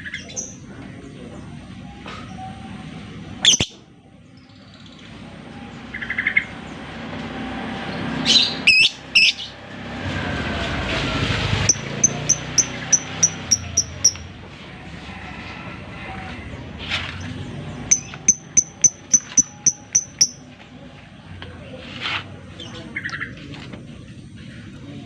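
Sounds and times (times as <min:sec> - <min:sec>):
lovebird calling: 0:11.6 - 0:14.3, 0:17.9 - 0:20.4.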